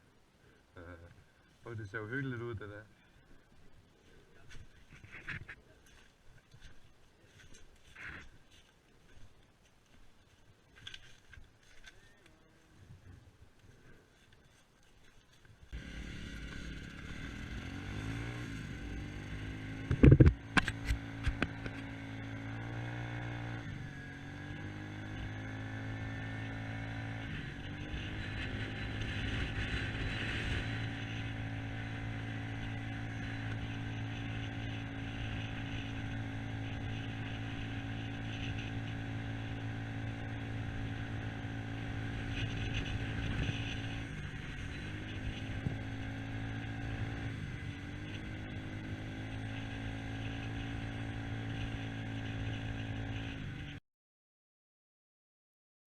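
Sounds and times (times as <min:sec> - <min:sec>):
small engine running: 0:15.7 - 0:53.8.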